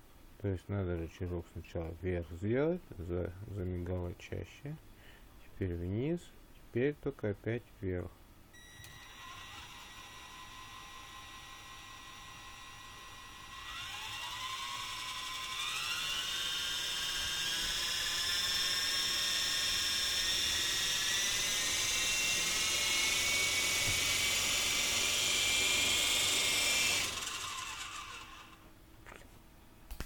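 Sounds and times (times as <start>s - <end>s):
toy helicopter motor whine: 8.6s - 28.6s.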